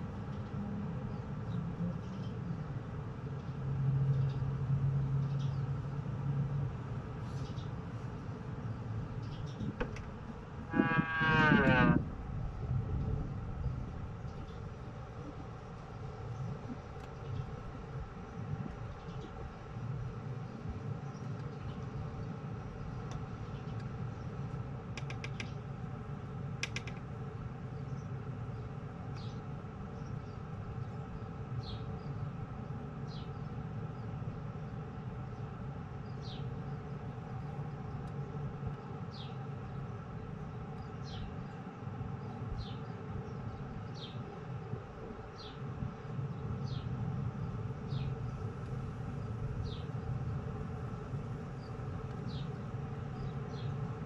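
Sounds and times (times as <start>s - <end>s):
steady low rumble: 7.8s - 24.4s.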